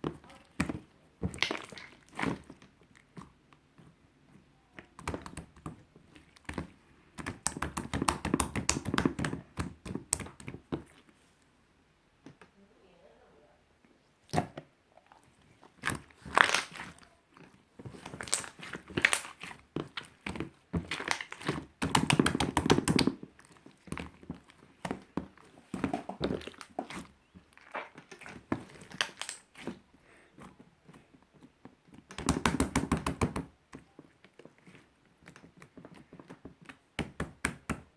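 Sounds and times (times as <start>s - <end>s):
slime squished by hand: 0.0s - 3.8s, 14.2s - 37.9s.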